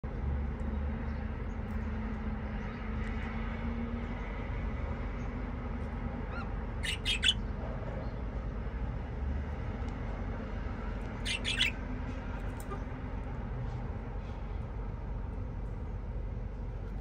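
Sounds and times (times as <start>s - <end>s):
budgerigar chirping: 6.3s - 7.4s, 11.2s - 11.8s.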